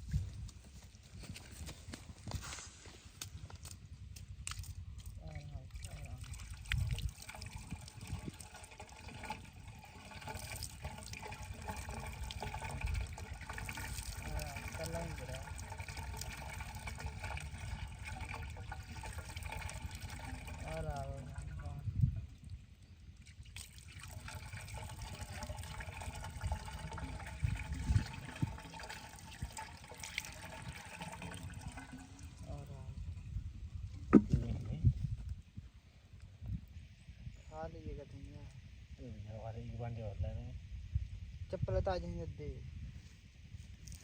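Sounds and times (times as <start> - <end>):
water gushing and splashing: 5.6 - 21.8, 23.3 - 33.2
low thumps: 33.9 - 34.9.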